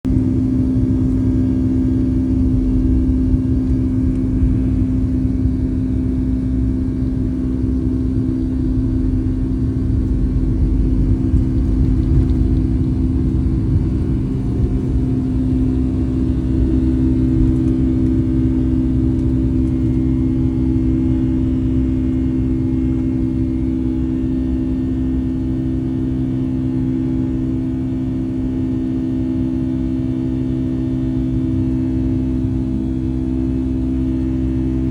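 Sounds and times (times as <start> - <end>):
heavy low rumble: 0.1 - 25.6
jet engines droning: 0.1 - 27.6.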